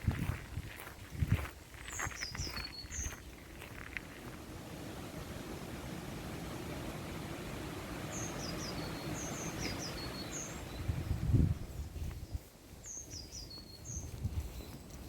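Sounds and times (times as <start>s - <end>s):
walking footsteps thumping: 0.0s - 4.4s
bird high falling chirps: 8.1s - 11.0s.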